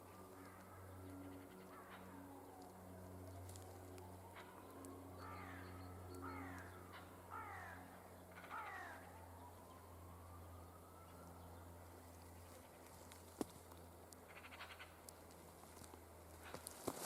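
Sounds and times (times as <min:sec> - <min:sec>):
low steady hum: 0:00.0 - 0:17.0
crow cawing: 0:00.3 - 0:02.3, 0:05.2 - 0:09.3, 0:14.2 - 0:15.0.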